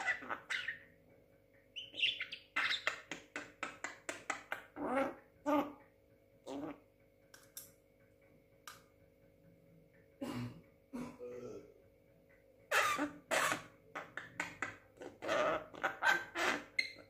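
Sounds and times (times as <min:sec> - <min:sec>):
myna bird calls: 0:01.7 - 0:05.7.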